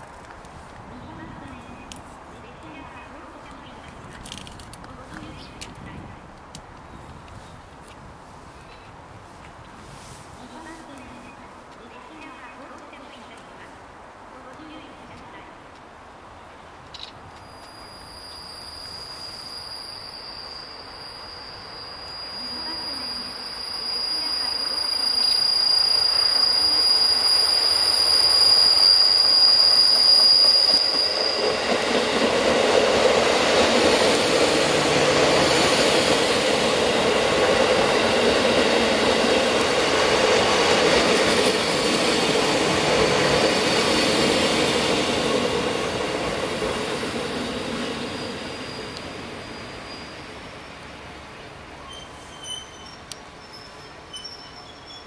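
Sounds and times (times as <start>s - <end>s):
rumble of train cars passing: 0.0s - 55.0s
electric train arriving: 14.4s - 55.0s
high steady squeal: 17.4s - 51.0s, 51.8s - 55.0s.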